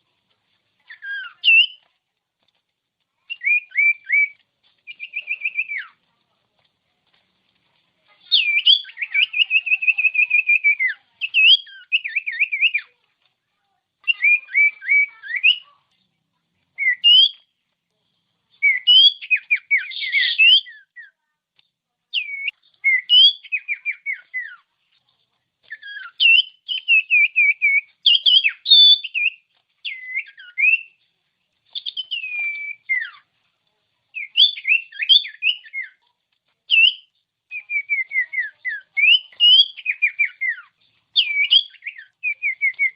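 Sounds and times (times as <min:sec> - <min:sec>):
bird singing whistled notes and trills: 0:00.8 - 0:01.9, 0:03.2 - 0:06.1, 0:08.1 - 0:13.0, 0:14.0 - 0:15.8, 0:16.8 - 0:17.5, 0:18.6 - 0:21.2, 0:22.1 - 0:24.7, 0:25.6 - 0:31.0, 0:31.7 - 0:33.3, 0:34.1 - 0:36.0, 0:36.7 - 0:42.9.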